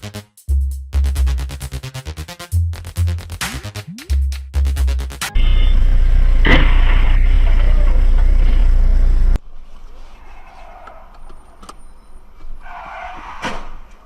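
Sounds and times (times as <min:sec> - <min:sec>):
vehicle and road rumble: 0:05.3 - 0:14.0
hiss of traffic: 0:05.4 - 0:10.8
sharp bang: 0:06.4 - 0:07.3.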